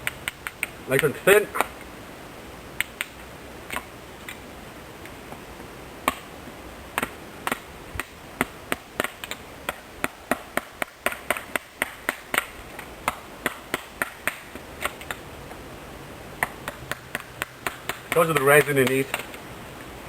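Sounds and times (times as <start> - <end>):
knife chopping kindling: 16.7 - 19.3.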